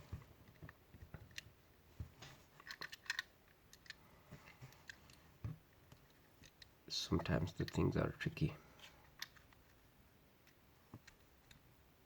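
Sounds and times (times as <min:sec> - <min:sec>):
clicks of small plastic parts: 0:02.6 - 0:04.0, 0:05.9 - 0:06.7, 0:09.1 - 0:09.7.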